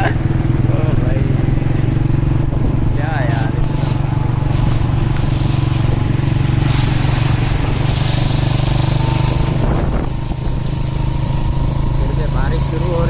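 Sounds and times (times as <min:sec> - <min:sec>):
motorcycle engine running: 0:00.0 - 0:13.0
rushing hiss: 0:03.5 - 0:12.8.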